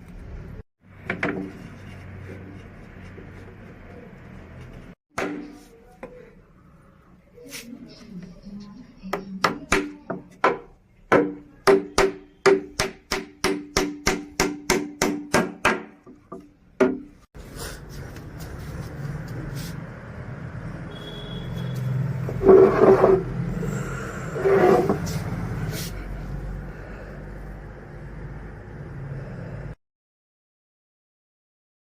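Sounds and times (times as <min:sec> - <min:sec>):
hammer striking wood: 0:05.1 - 0:05.6, 0:09.4 - 0:17.2.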